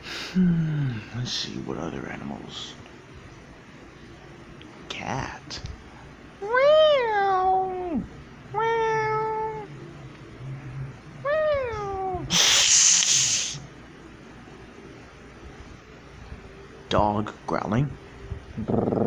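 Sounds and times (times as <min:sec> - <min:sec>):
person hissing: 0:12.3 - 0:13.7.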